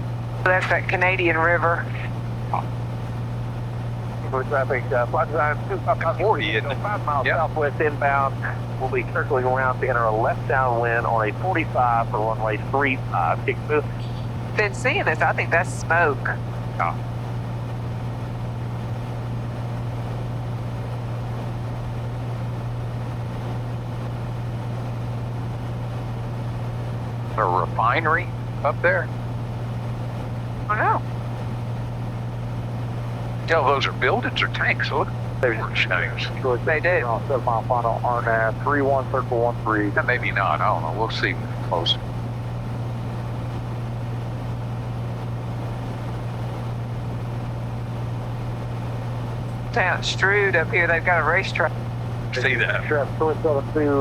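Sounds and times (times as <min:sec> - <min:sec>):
airflow noise: 0:00.0 - 0:17.0
airplane engine droning in cabin: 0:00.0 - 0:54.0.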